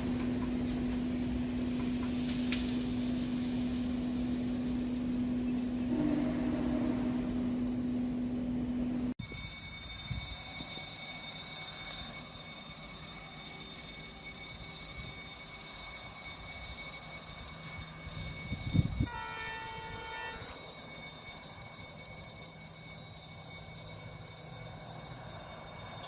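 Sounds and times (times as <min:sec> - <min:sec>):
train rumbling: 0:00.0 - 0:26.0
locomotive horn blast: 0:05.8 - 0:07.5, 0:19.1 - 0:20.6.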